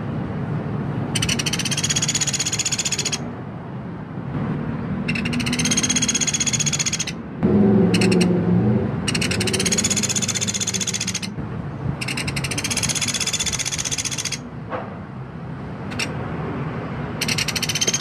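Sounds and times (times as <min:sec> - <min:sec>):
woodpecker rattling call: 0:01.1 - 0:03.3, 0:05.0 - 0:07.2, 0:07.9 - 0:08.4, 0:09.0 - 0:11.4, 0:12.0 - 0:14.5, 0:15.8 - 0:16.2, 0:17.2 - 0:18.0.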